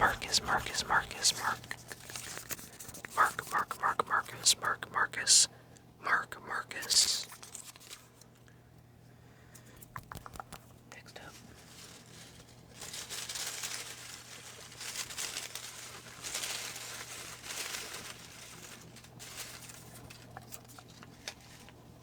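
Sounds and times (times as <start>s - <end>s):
faint steady hum: 0.0s - 22.0s
paper slips rustling and crinkling: 11.3s - 21.7s.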